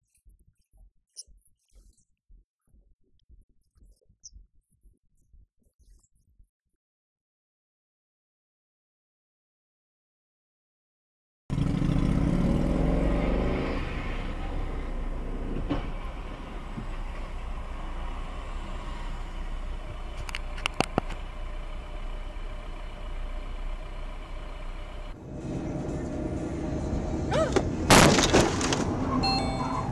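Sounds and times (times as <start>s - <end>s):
car engine revving: 11.5s - 29.9s
road noise: 11.5s - 29.9s
sharp clicks: 20.2s - 21.2s.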